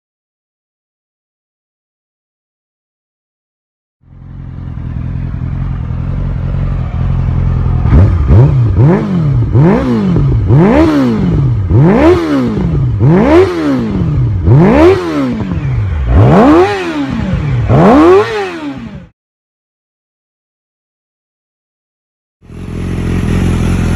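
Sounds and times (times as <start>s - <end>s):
motorcycle engine revving: 4.0s - 19.1s, 22.4s - 23.9s.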